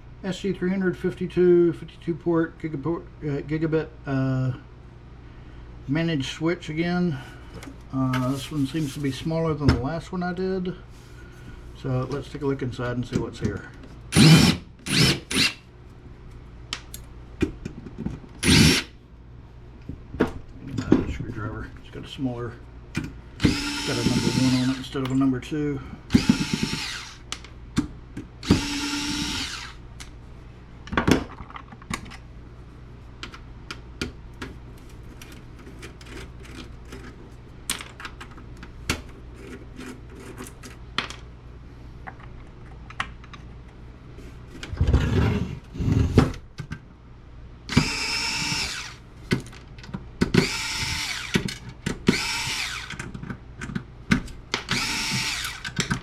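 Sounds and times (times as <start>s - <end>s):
cordless drill running: 14.2s - 15.6s, 18.4s - 18.9s, 23.4s - 24.8s, 26.1s - 27.2s, 28.4s - 29.8s, 47.7s - 49.0s, 50.4s - 51.5s, 52.1s - 53.0s, 54.7s - 55.8s.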